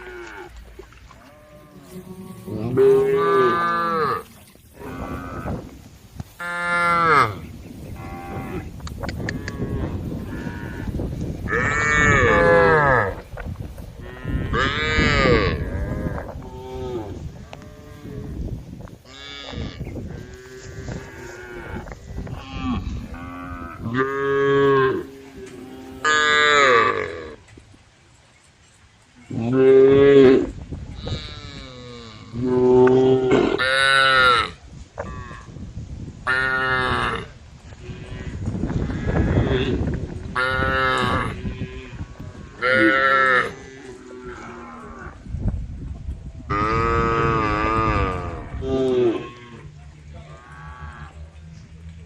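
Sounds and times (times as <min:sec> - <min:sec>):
cows mooing: 0:00.0 - 0:05.8, 0:06.4 - 0:13.2, 0:14.0 - 0:18.4, 0:19.1 - 0:27.4, 0:36.3 - 0:45.2, 0:46.5 - 0:51.4.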